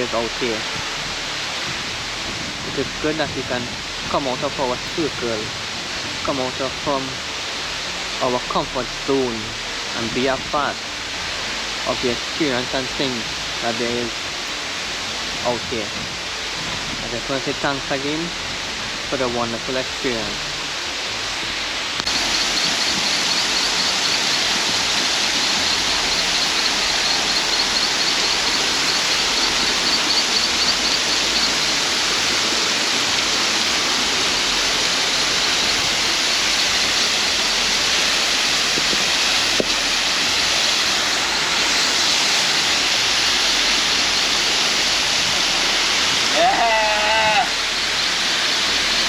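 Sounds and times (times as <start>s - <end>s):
waterfall rushing: 0.0s - 49.0s
faint high chirping: 25.4s - 31.9s.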